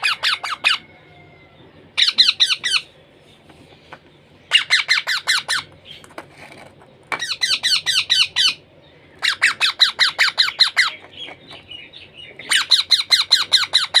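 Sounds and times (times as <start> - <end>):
parrot squawking: 0.0 - 0.9, 2.0 - 2.9, 4.5 - 5.7, 7.2 - 8.6, 9.2 - 11.0, 12.4 - 14.0.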